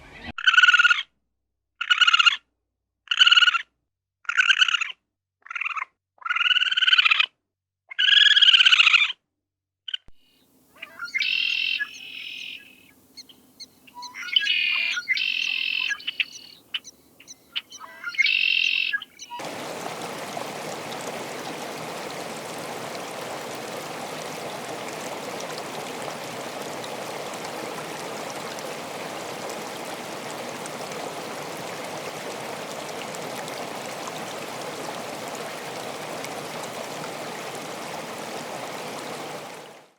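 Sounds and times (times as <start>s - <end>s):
bird calling high notes: 10.8s - 30.1s
flowing water rushing: 11.0s - 16.8s, 18.0s - 39.9s.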